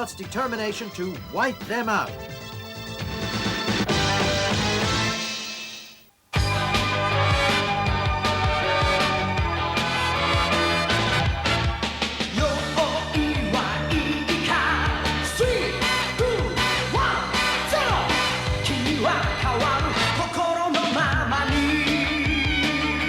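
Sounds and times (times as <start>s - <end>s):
rock song with singing: 12.2s - 23.0s.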